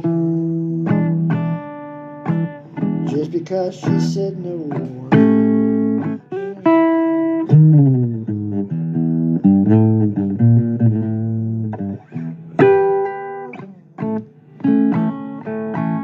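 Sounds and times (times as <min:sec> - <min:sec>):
blues guitar: 0:00.0 - 0:16.0.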